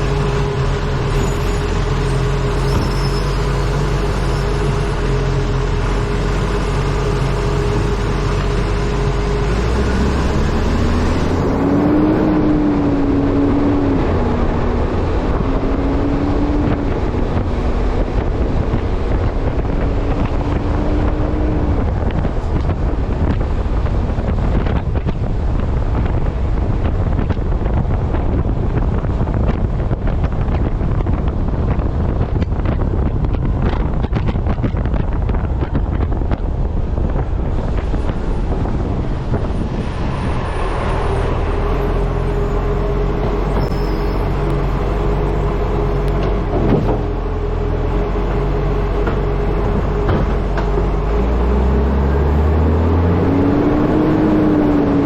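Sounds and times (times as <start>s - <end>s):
rising wavering tone: 0.0s - 17.2s, 39.5s - 55.0s
heavy wind noise on microphone: 0.0s - 55.0s
truck engine low rumble: 0.0s - 55.0s.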